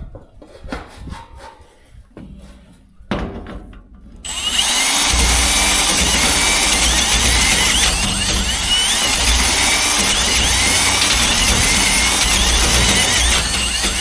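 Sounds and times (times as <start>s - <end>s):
drill bit squealing on metal: 4.3s - 14.0s
power drill boring into metal: 4.3s - 14.0s.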